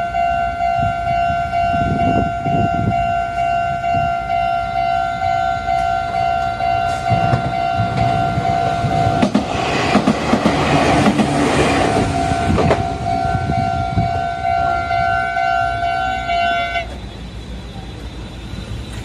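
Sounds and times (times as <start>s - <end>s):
level crossing warning bell: 0.0s - 9.4s, 11.6s - 18.8s
train wheels clattering: 5.7s - 14.7s.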